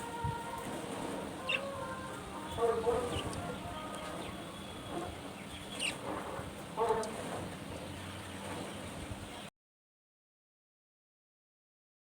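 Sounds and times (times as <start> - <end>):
budgerigars chirping: 4.2 - 6.1.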